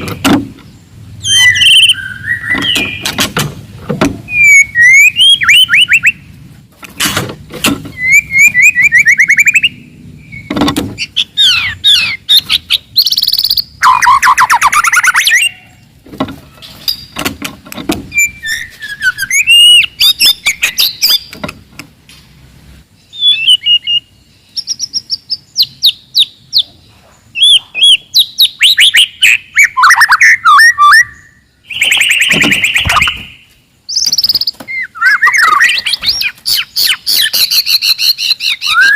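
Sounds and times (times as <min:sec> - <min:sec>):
bird singing whistles and trills: 0:01.2 - 0:03.2, 0:04.2 - 0:06.3, 0:07.9 - 0:15.8, 0:18.1 - 0:21.4, 0:23.0 - 0:26.8, 0:27.4 - 0:38.9.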